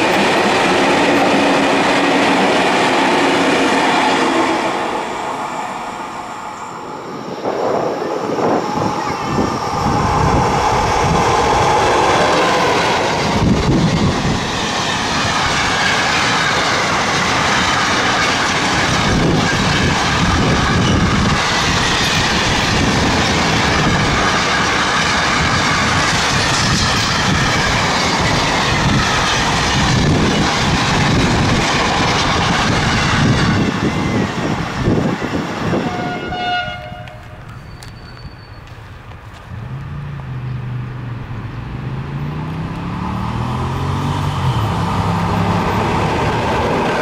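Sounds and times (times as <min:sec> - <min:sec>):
clickety-clack over rail joints: 0:00.0 - 0:04.4, 0:11.1 - 0:40.4
freight train wheels on rails: 0:00.0 - 0:47.0
brief pitched tone: 0:04.8 - 0:08.4.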